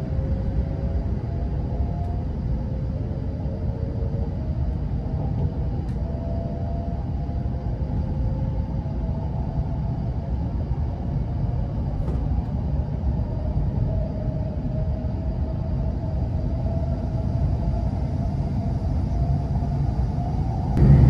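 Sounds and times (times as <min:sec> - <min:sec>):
faint humming tones: 0:00.0 - 0:21.0
train rumbling: 0:18.5 - 0:21.0.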